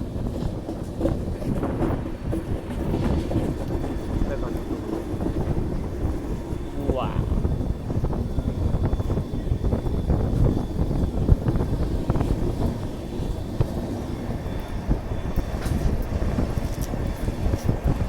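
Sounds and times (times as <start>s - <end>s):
train knocks and clatter: 0.0s - 18.0s
train wheels rumbling on rails: 0.0s - 18.0s.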